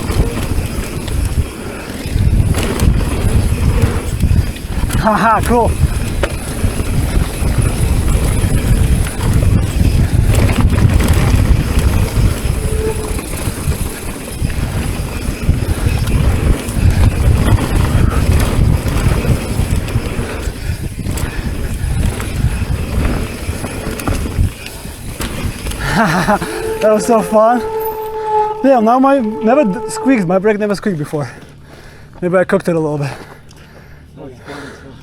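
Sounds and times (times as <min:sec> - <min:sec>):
tyres rumbling over dirt: 0:00.0 - 0:31.5
wind buffeting microphone: 0:00.0 - 0:31.6
disc brake squeal: 0:12.3 - 0:14.0, 0:26.1 - 0:30.8.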